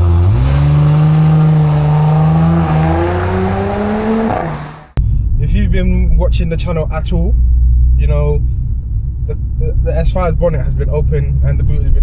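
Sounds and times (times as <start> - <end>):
car exhaust under acceleration: 0.0 - 12.0.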